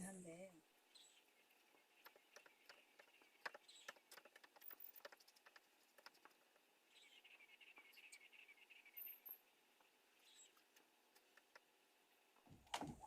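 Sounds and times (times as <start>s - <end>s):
birds chirping: 0.0s - 13.0s
faint light clicks and taps: 1.7s - 6.7s.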